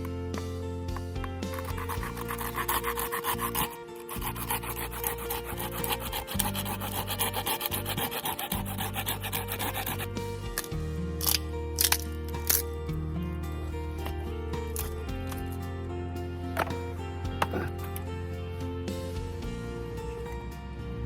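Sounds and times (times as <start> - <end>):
background music with low chords: 0.0 - 21.0
scraping strokes on wood: 1.1 - 12.6.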